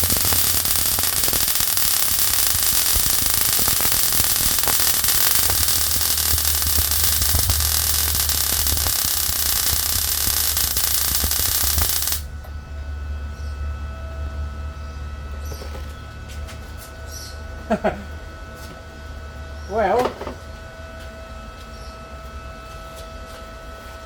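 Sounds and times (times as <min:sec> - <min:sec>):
welding arc crackling and hissing: 0:00.0 - 0:12.3
low hum: 0:00.0 - 0:19.7.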